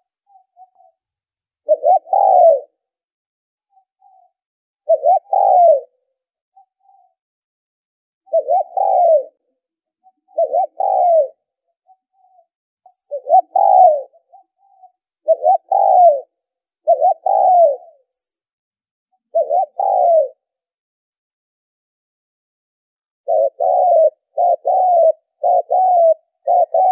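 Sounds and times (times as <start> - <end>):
dove cooing: 1.6 - 2.8, 4.9 - 6.0, 8.3 - 9.5, 10.1 - 11.5, 13.1 - 18.1, 19.3 - 20.5, 23.2 - 26.9.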